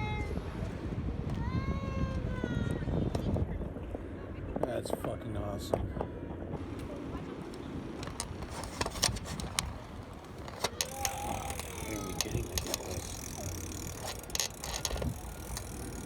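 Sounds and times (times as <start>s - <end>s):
bicycle rolling rumble: 0.0s - 4.2s, 6.4s - 16.0s
bicycle clicks and rattles: 6.6s - 16.0s.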